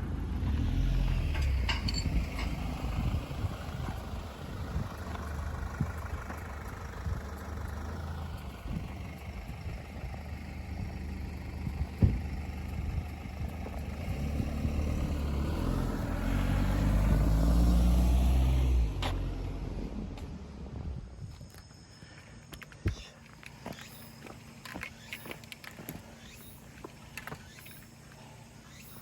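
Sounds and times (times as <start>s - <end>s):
motorcycle engine running: 2.9s - 15.4s.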